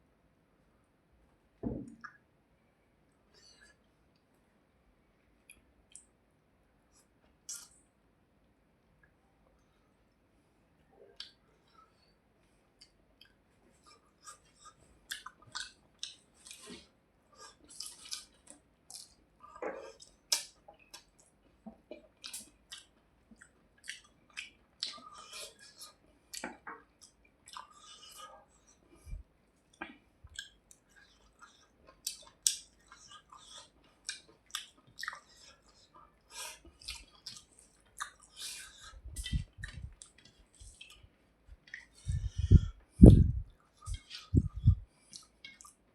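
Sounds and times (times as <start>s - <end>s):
wet chewing mouth smacks: 36.4s - 41.0s.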